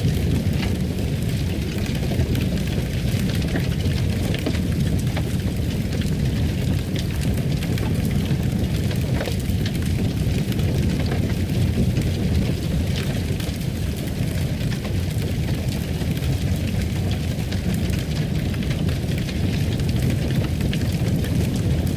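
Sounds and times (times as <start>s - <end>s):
fire crackling in a fireplace: 0.0s - 21.9s.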